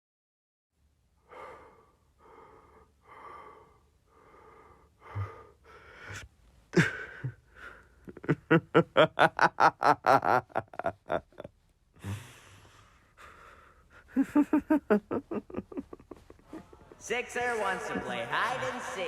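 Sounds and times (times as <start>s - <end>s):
person breathing heavily: 1.2s - 8.8s, 10.0s - 17.0s
sharp gasps: 1.3s - 8.0s, 12.0s - 14.2s
voiced panting: 1.3s - 9.0s.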